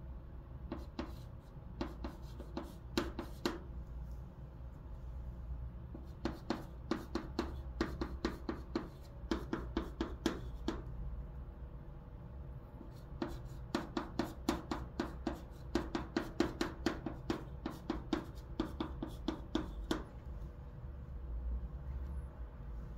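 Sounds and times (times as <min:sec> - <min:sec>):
chalk tapping on blackboard: 0:00.7 - 0:03.7, 0:05.9 - 0:10.9, 0:12.8 - 0:20.1.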